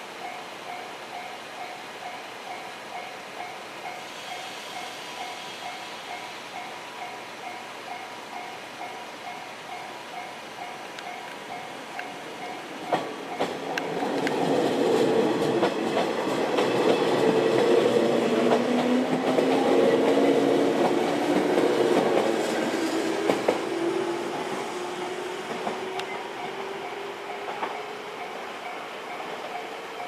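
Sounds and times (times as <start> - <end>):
wheels clicking over rail joints: 10.9 - 24.6, 25.4 - 27.9.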